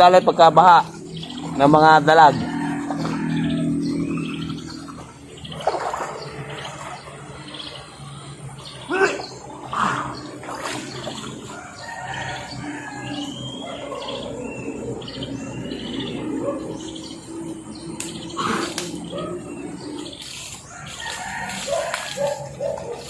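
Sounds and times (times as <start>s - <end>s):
small birds chirping: 0.0s - 23.0s
running water: 5.2s - 12.5s.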